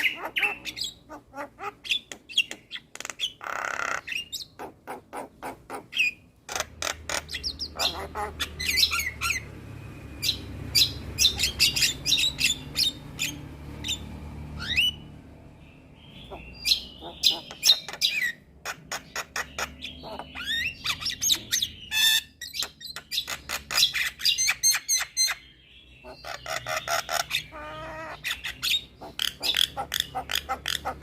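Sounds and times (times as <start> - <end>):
harsh rasping bird call: 3.3 - 9.4, 16.1 - 22.4.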